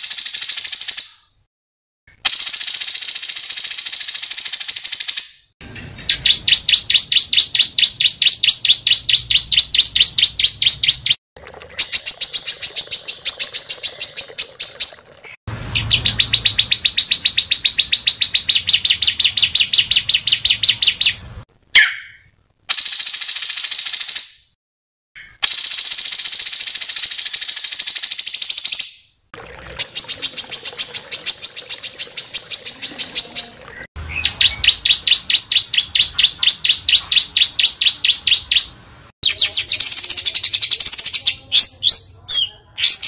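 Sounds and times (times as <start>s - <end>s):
songbird singing rapid trills: 6.1s - 11.2s, 11.8s - 15.2s, 29.9s - 43.0s.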